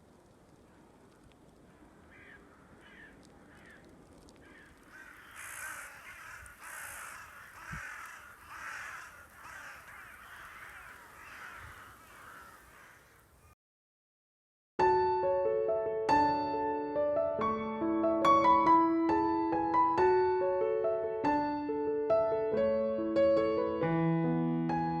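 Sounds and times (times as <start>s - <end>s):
crows cawing: 1.7s - 13.5s.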